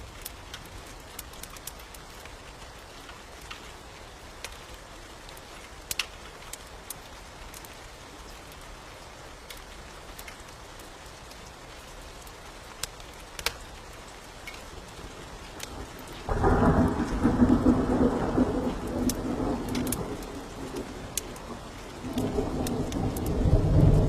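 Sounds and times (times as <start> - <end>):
rain hiss: 0.0 - 24.0
thunder clap rumbling: 15.6 - 24.0.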